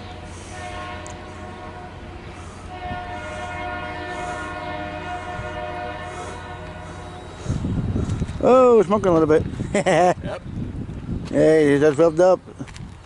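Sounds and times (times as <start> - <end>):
low rumble of train: 0.0 - 13.0
locomotive air horn chord: 0.1 - 7.8.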